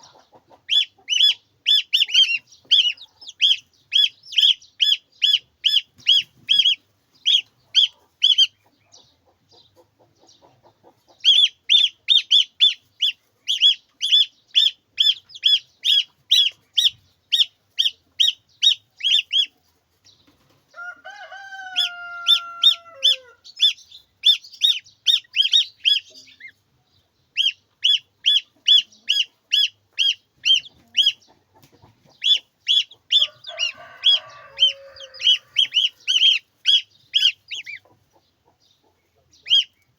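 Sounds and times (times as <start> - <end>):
chick peeping: 0.0 - 39.9
chicken call: 20.8 - 26.0, 32.2 - 37.4.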